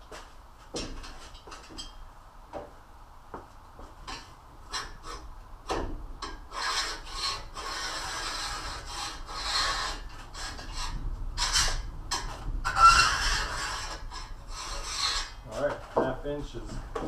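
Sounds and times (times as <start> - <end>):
scraping against hard surface: 3.8 - 17.0.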